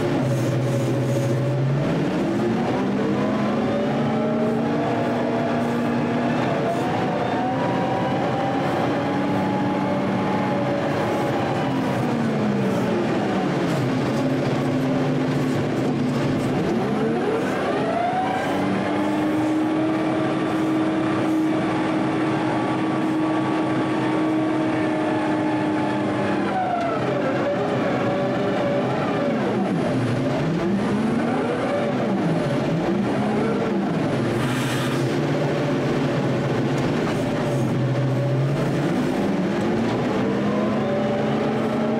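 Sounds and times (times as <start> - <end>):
heavy machine engine revving: 0.0 - 41.9
short burst of hiss: 34.4 - 35.0.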